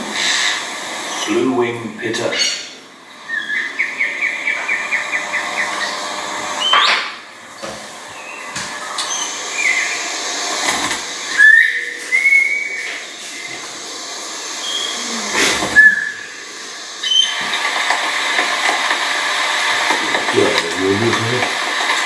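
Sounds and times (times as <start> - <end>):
steady hiss: 0.0 - 22.0
bird whistled calls: 2.0 - 17.6
loud rustling: 2.8 - 22.0.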